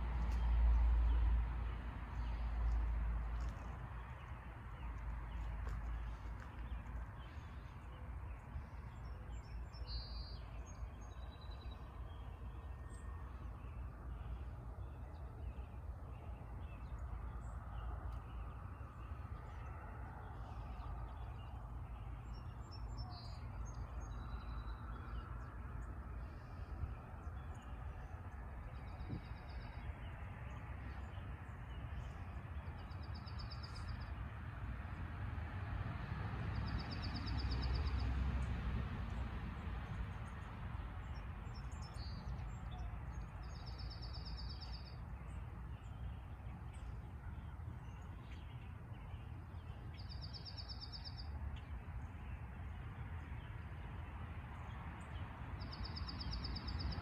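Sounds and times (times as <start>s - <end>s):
songbirds trilling: 39.8s - 57.0s.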